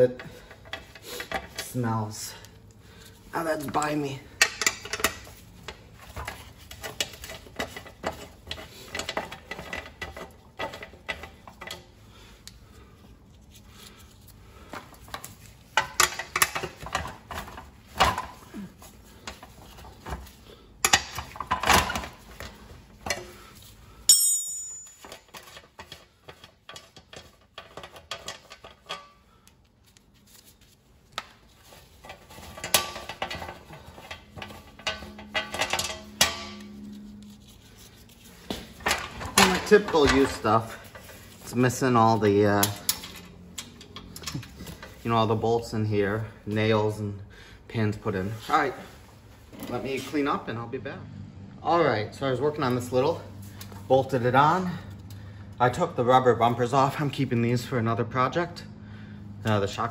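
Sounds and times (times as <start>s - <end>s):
sharp ringing metal clang: 24.1s - 25.0s
metal tools clinking and clanking: 24.1s - 29.2s, 31.9s - 37.0s, 38.7s - 45.0s.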